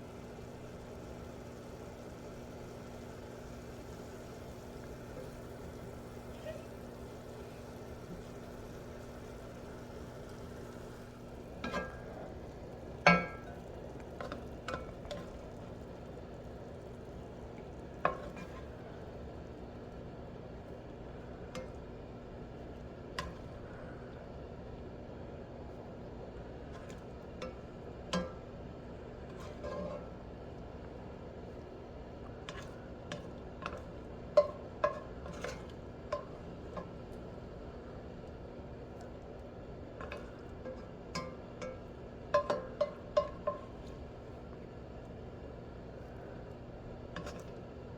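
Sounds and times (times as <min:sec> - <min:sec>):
food sizzling in a skillet: 0:00.0 - 0:19.3
utensil clanking against pan: 0:11.6 - 0:12.4, 0:13.0 - 0:13.6, 0:40.0 - 0:43.8.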